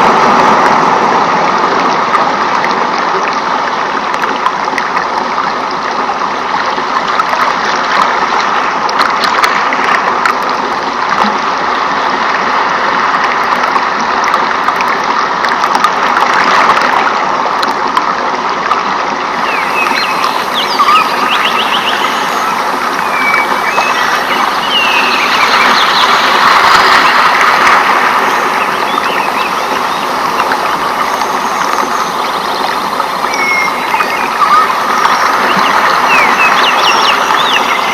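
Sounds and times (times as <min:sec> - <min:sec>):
stream flowing: 0:00.0 - 0:37.9
high chirping calls: 0:19.4 - 0:32.6, 0:33.2 - 0:37.9.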